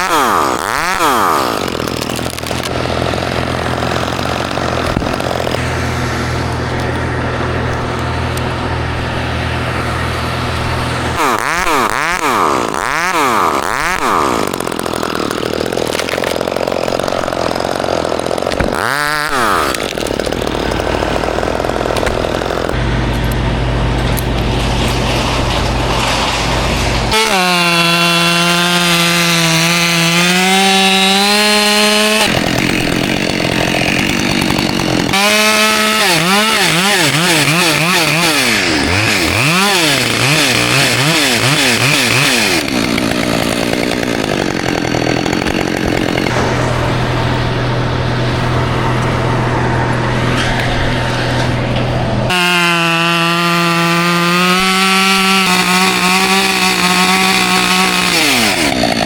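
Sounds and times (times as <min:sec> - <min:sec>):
chainsaw cutting at high revs: 0:00.0 - 0:59.0
lower steady engine drone: 0:05.6 - 0:11.2, 0:20.6 - 0:27.2, 0:46.3 - 0:52.3.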